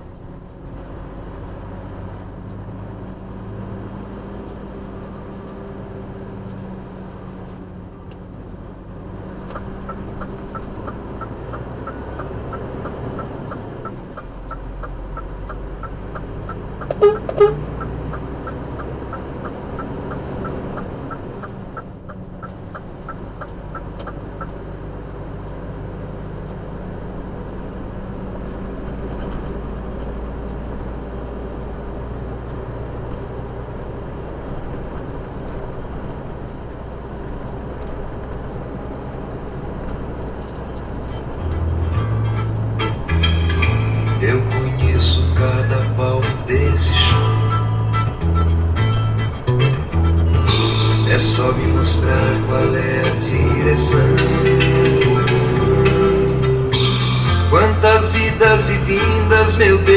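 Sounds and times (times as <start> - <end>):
diesel truck engine running: 0.0 - 59.9
truck horn toots: 16.8 - 17.9, 41.9 - 59.9.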